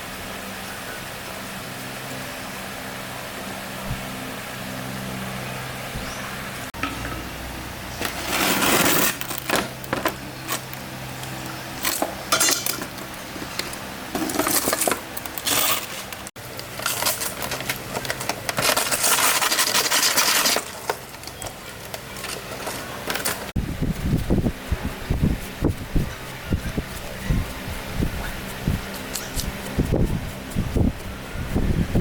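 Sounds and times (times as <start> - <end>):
hard objects clinking and scraping: 7.9 - 23.6.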